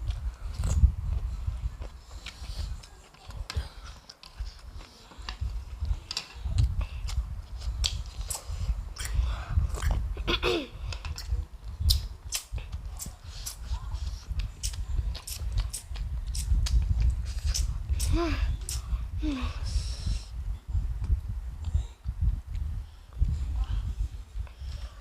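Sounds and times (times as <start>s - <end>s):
person chewing noodles: 5.5s - 10.1s, 11.0s - 18.8s.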